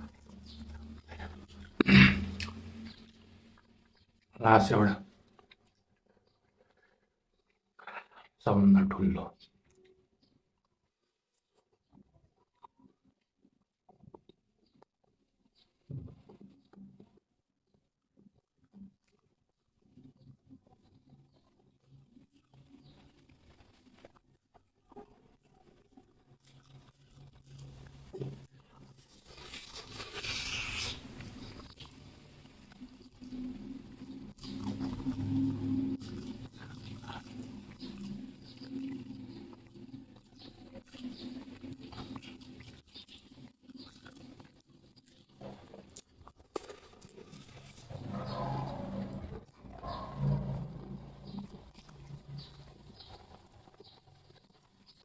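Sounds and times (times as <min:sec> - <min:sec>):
person chewing and biting food: 0:00.0 - 0:04.3, 0:22.3 - 0:48.1, 0:50.8 - 0:55.0.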